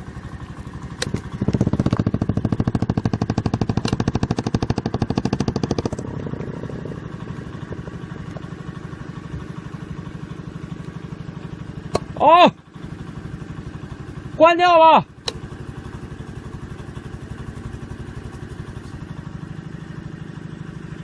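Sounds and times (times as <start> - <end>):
hydraulic power unit engine pulsing: 0.0 - 19.8.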